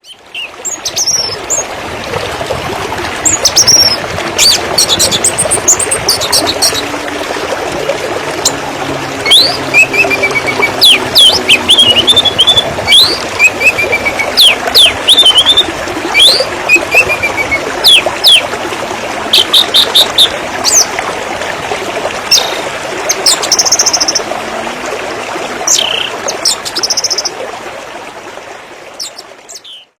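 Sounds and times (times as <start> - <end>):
running water splashing: 0.0 - 29.8
birds chirping: 3.2 - 7.0, 8.3 - 18.4, 29.0 - 29.9.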